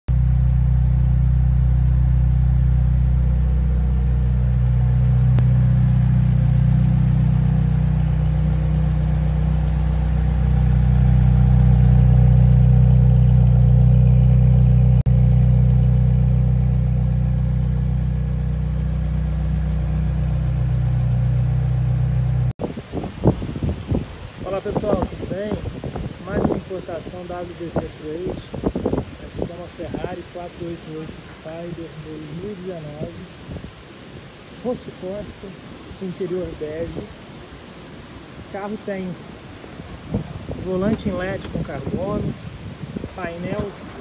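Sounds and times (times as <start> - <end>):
car engine idling: 0.1 - 22.6.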